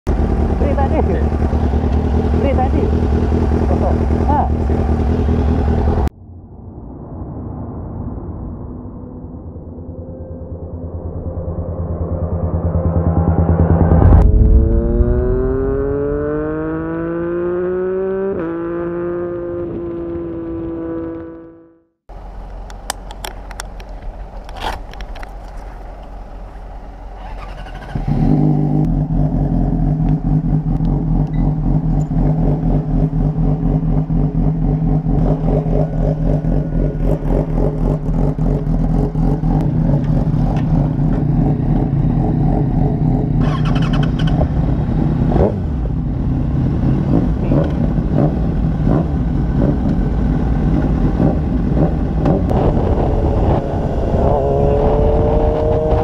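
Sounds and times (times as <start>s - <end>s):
motorcycle engine starting and idling: 0.1s - 6.1s, 22.3s - 52.8s
engine blips: 9.8s - 17.9s.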